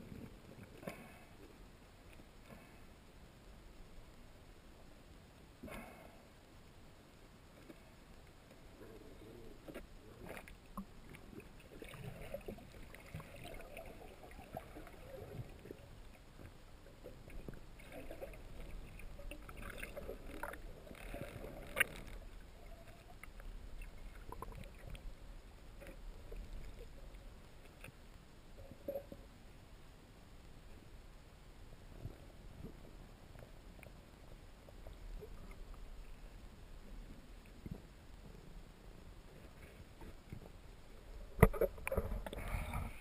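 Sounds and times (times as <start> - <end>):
river water sloshing and splashing: 11.1 - 15.9, 17.6 - 23.2.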